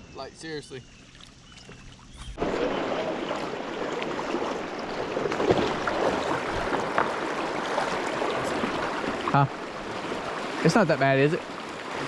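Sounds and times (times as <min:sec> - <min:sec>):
river water rushing and splashing: 0:02.4 - 0:12.0.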